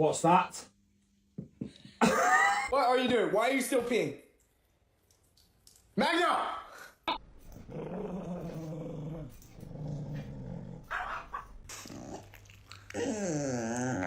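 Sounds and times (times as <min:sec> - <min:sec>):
dog growling: 0:07.5 - 0:14.0
dog wavering vocal: 0:07.5 - 0:14.0.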